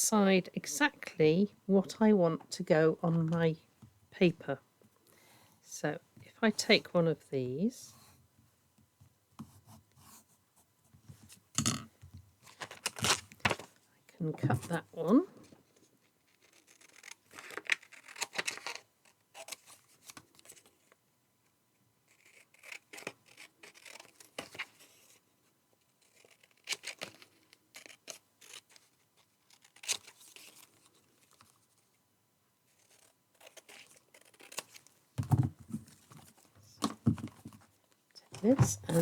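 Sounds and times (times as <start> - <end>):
scissors snipping paper: 32.8 - 34.8.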